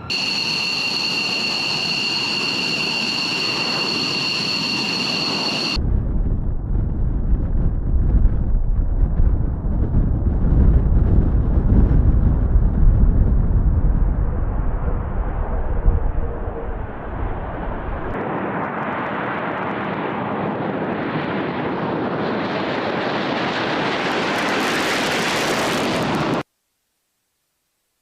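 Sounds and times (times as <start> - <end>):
hissing jet noise: 0.0 - 5.8
jet aircraft rumble: 0.0 - 26.4.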